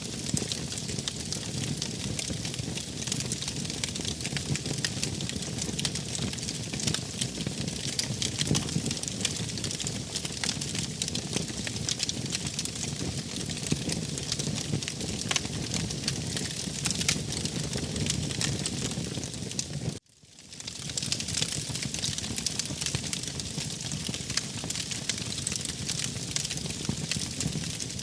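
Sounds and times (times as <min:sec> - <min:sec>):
low rumble of flames: 0:00.0 - 0:20.0, 0:20.6 - 0:28.0
wood fire crackling: 0:00.0 - 0:28.0.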